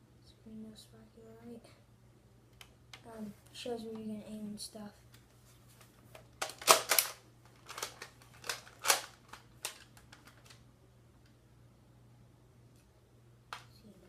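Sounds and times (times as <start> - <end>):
plastic toy blaster clicks: 6.4 - 9.8.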